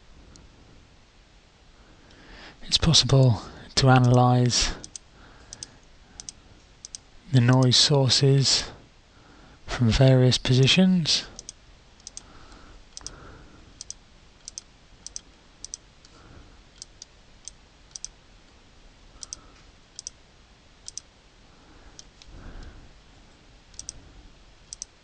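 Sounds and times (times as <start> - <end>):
faint background hiss: 0.0 - 25.0
computer mouse clicking: 4.0 - 4.2, 4.8 - 7.7, 11.4 - 13.2, 13.8 - 16.2, 16.8 - 18.2, 19.2 - 19.4, 20.0 - 20.2, 20.8 - 21.1, 23.7 - 24.0, 24.7 - 25.0.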